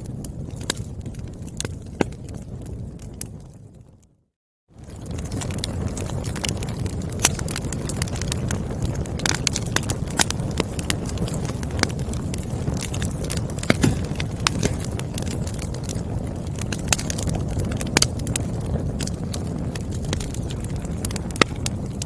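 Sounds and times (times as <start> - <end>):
fire popping and snapping: 0.0 - 22.0
low rumble of flame: 0.0 - 22.0.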